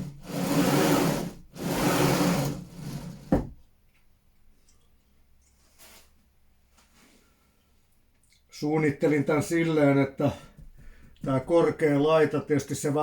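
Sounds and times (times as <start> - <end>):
sliding back and forth: 0.0 - 3.5.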